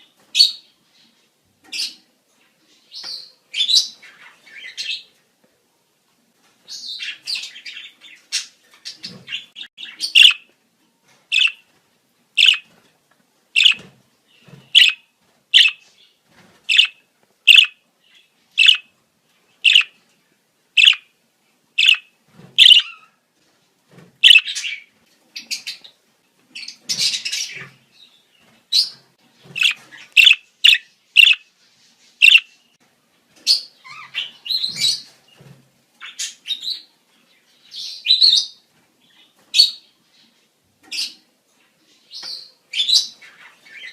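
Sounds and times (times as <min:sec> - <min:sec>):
budgerigar chirps: 0:09.8 - 0:10.4, 0:11.3 - 0:11.6, 0:12.4 - 0:12.6, 0:13.6 - 0:13.8, 0:14.8 - 0:15.0, 0:15.6 - 0:15.8, 0:16.7 - 0:17.8, 0:18.6 - 0:18.9, 0:19.6 - 0:19.9, 0:20.8 - 0:21.1, 0:21.8 - 0:23.0, 0:24.2 - 0:24.8, 0:29.6 - 0:31.4, 0:32.2 - 0:32.5
budgerigar warbling chatter: 0:10.1 - 0:10.4, 0:12.4 - 0:12.6, 0:13.6 - 0:13.8, 0:14.8 - 0:15.0, 0:15.6 - 0:15.8, 0:17.5 - 0:17.7, 0:18.6 - 0:18.8, 0:19.7 - 0:19.9, 0:20.8 - 0:21.0, 0:21.8 - 0:22.0, 0:22.6 - 0:22.8, 0:29.6 - 0:31.4, 0:32.2 - 0:32.4.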